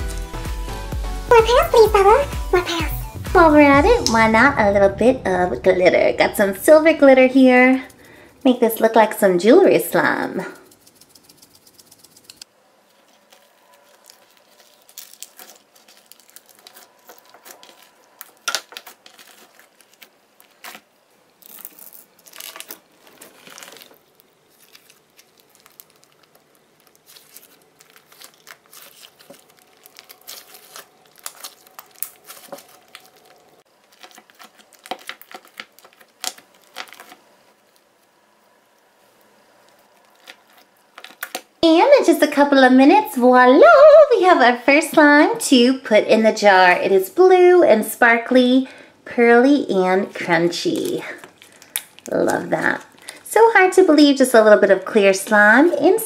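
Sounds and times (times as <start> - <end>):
slime crackling and popping: 10.6 - 38.1, 39.6 - 41.6, 50.1 - 56.0.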